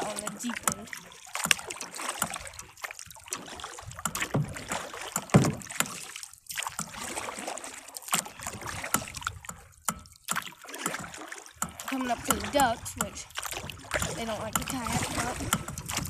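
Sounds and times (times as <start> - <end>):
paddle strokes splashing water: 0.0 - 16.0
sharp knocks: 4.0 - 6.0.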